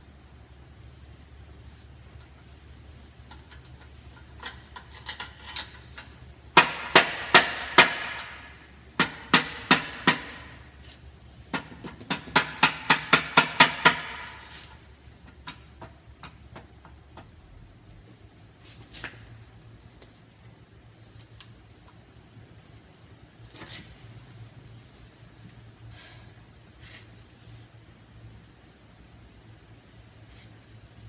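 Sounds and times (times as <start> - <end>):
metal exhaust pipe being struck: 6.6 - 10.6.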